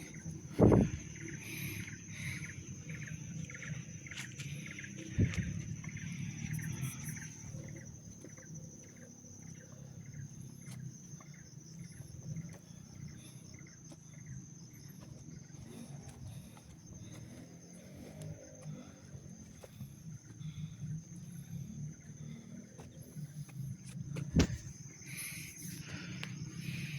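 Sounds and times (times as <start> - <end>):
high-pitched insect trilling: 0.0 - 18.6
sharp thump: 24.3 - 24.7.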